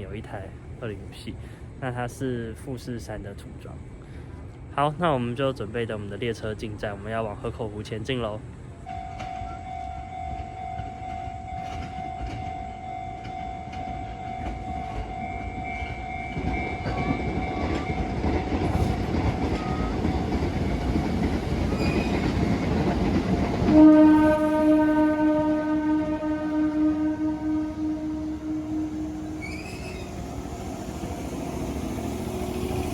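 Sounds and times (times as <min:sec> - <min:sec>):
train running noise: 0:08.4 - 0:32.9
loud train horn: 0:21.8 - 0:32.9.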